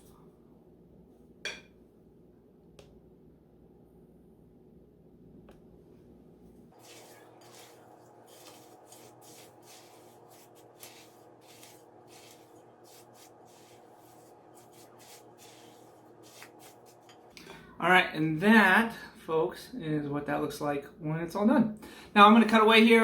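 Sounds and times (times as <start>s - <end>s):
spoon stirring noodles in bowl: 6.8s - 17.6s.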